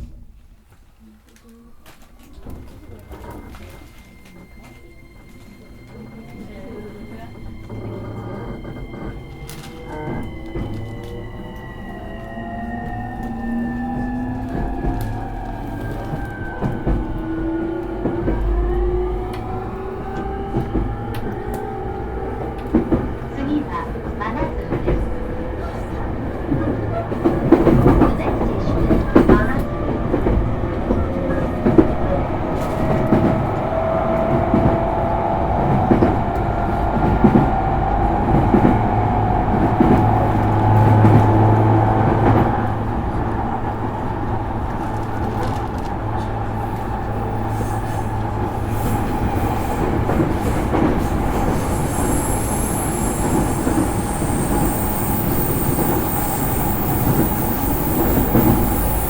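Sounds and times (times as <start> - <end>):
train rolling noise: 0.0 - 59.0
traction motor whine rising: 7.5 - 22.7.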